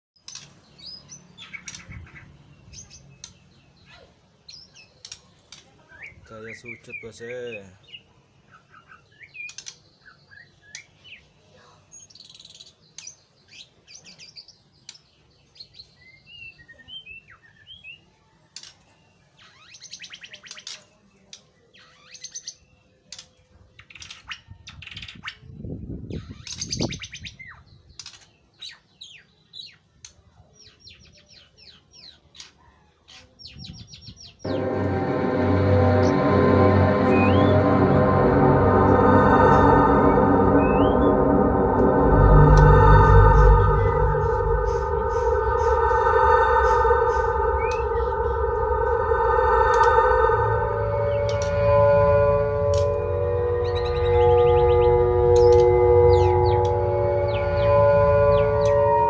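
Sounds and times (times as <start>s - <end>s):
low rumble: 34.5s - 59.0s.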